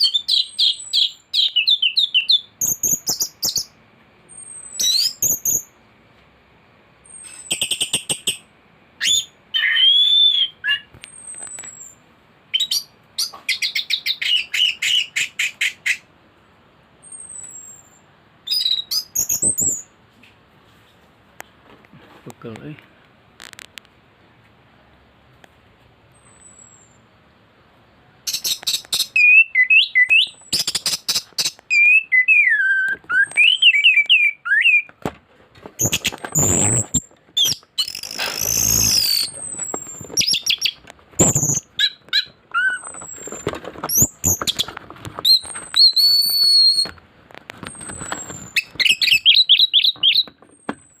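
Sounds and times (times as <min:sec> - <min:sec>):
bird whistled phrases: 0:00.0 - 0:03.7, 0:04.3 - 0:05.7, 0:09.0 - 0:12.0, 0:12.6 - 0:16.0, 0:17.0 - 0:19.9, 0:28.3 - 0:34.9, 0:35.8 - 0:44.7, 0:45.3 - 0:47.0, 0:47.7 - 0:50.3.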